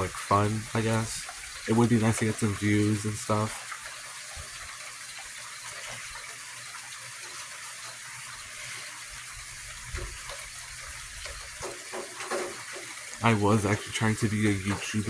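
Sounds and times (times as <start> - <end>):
steady rain falling: 8.6 - 15.0.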